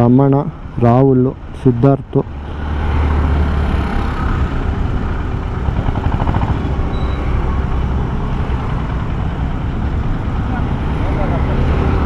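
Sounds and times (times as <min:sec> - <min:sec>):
road traffic noise: 0:00.0 - 0:12.0
motorcycle engine: 0:02.4 - 0:12.0.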